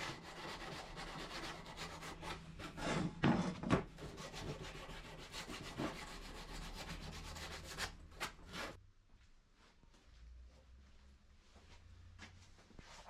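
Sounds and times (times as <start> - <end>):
rubbing and scraping strokes: 0.0 - 3.2, 4.0 - 8.8.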